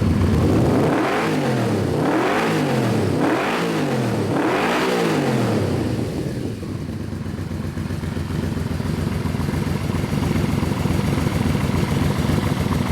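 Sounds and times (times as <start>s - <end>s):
motorcycle engine idling: 0.0s - 1.1s, 5.8s - 12.9s.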